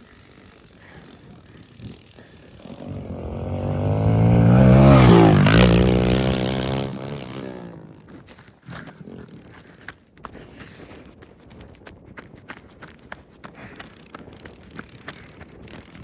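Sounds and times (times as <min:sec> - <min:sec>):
pit bike engine passing: 0:00.0 - 0:08.5.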